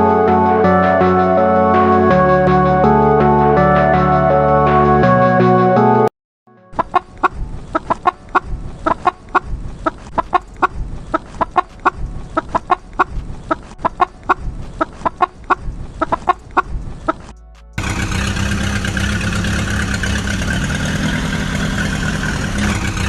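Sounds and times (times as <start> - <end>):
chickens clucking: 6.8 - 17.3
low background rumble: 6.8 - 23.0.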